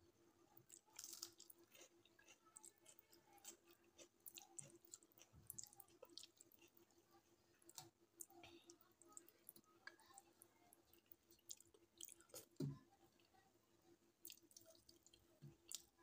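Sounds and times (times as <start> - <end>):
chewing with wet mouth clicks: 0.7 - 6.8, 10.9 - 12.5, 14.2 - 15.9.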